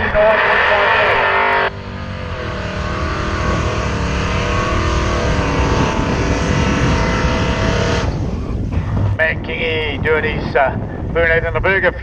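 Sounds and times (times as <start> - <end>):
car engine revving hard: 0.0 - 8.6
tyre burnout rushing noise: 0.0 - 9.3.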